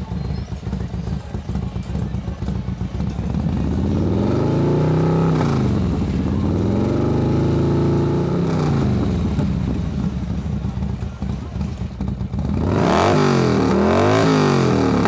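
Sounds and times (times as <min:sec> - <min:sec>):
motorcycles accelerating past: 0:12.4 - 0:15.0.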